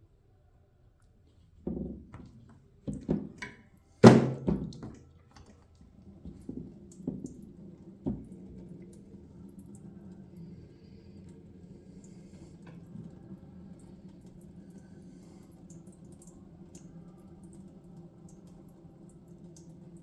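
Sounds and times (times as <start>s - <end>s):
knocks and clunks: 2.9s - 5.0s
faint steady hum: 4.6s - 20.0s.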